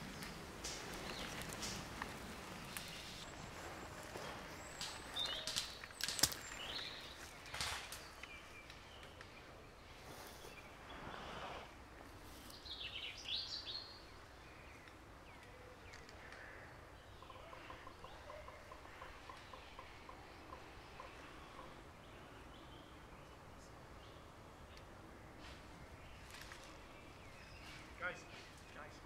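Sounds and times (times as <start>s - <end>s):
birds chirping: 0.0s - 29.0s
sharp clicks and rustles: 0.1s - 3.3s, 4.0s - 9.3s.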